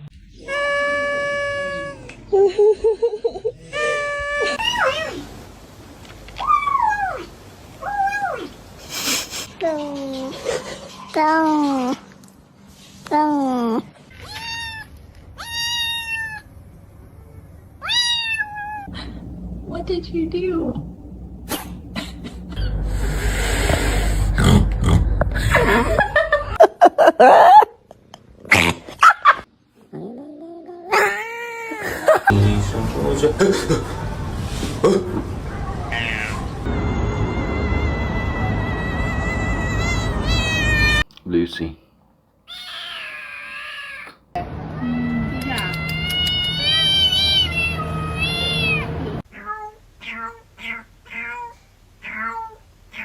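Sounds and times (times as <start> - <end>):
background hum: 0.0 - 53.0
cats meowing: 0.3 - 2.2, 14.1 - 16.5, 17.8 - 19.0, 35.7 - 41.1, 42.5 - 44.2, 44.8 - 53.0
pet animal wavering calls: 42.5 - 44.2, 44.8 - 53.0.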